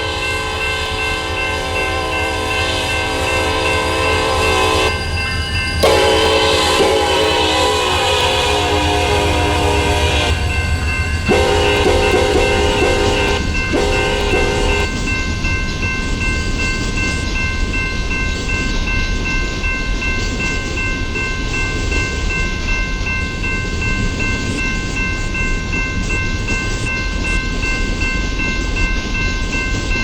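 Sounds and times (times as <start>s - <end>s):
train horn: 0.0s - 5.0s, 5.8s - 15.0s
steady high ringing tone: 0.0s - 30.0s
train cars rumbling: 0.0s - 30.0s.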